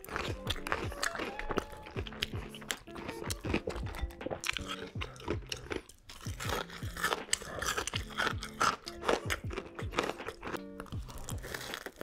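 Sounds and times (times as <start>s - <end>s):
crunching and chewing fried food: 0.0s - 12.0s.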